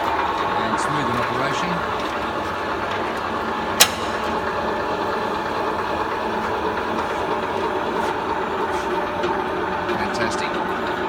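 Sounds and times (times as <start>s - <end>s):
sheet metal machine running: 0.0s - 11.0s
sharp click: 3.8s - 4.4s.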